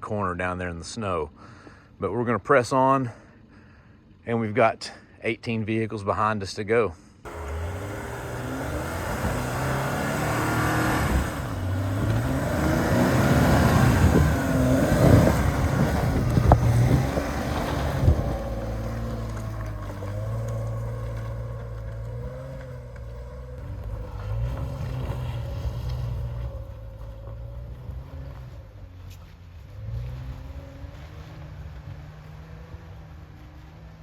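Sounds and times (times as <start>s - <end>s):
engine working under load: 7.2s - 34.0s.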